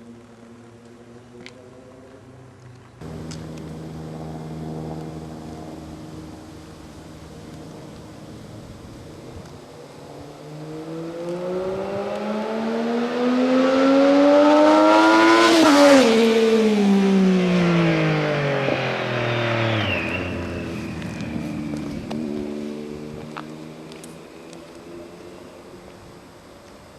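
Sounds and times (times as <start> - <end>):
motorcycle passing by accelerating: 3.0 - 9.1, 10.0 - 25.3.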